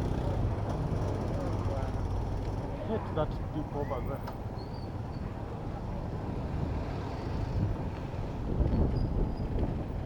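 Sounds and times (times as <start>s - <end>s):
low rumble of city traffic: 0.0s - 10.0s
wind buffeting microphone: 7.6s - 10.0s.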